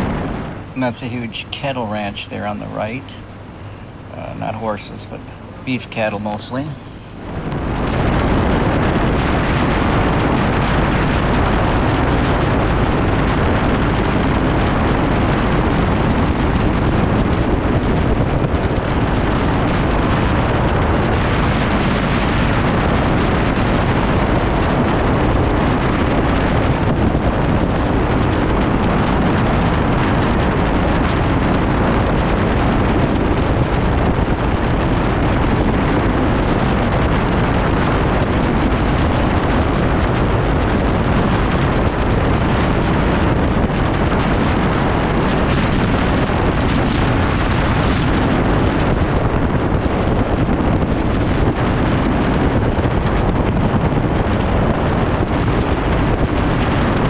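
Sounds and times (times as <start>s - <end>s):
road noise: 0.0s - 3.2s
wind rushing over microphone: 0.0s - 57.0s.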